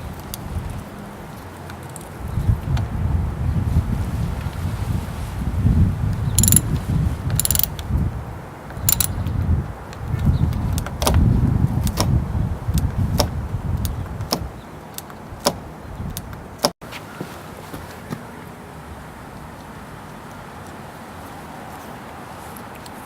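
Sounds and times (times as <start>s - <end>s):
metallic ratcheting rasps: 6.4s - 6.6s, 7.4s - 7.7s, 8.9s - 9.1s
sharp clicks: 6.4s - 6.6s, 7.4s - 7.7s, 8.9s - 9.2s.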